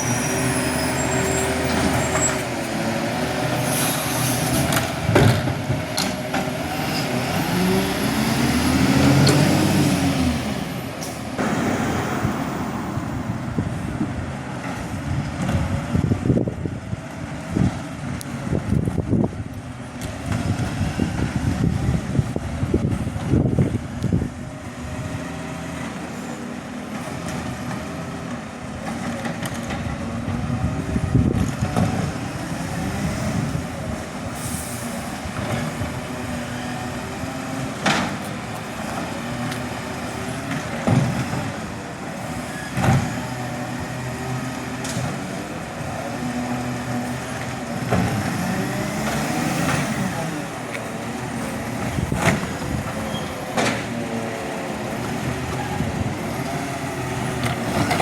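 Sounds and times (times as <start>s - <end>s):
garbage truck engine running: 0.0s - 58.0s.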